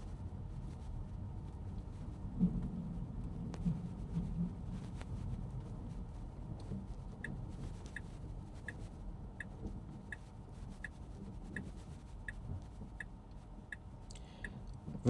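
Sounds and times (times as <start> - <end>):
low rumble of car rolling: 0.0 - 15.0
turn signal ticking: 7.2 - 8.8, 9.4 - 14.9.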